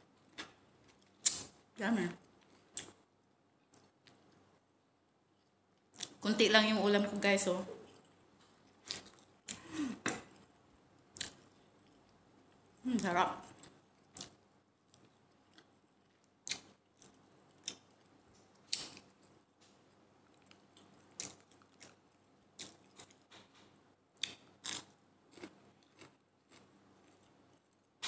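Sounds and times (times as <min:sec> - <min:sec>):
person chewing rice: 0:07.9 - 0:09.6, 0:10.2 - 0:12.8, 0:13.5 - 0:23.4, 0:24.2 - 0:27.9.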